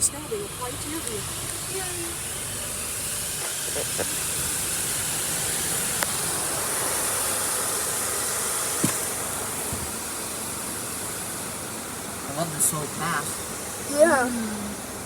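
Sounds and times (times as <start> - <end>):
water spraying onto a car: 0.0 - 15.0
light knocks: 8.8 - 10.0.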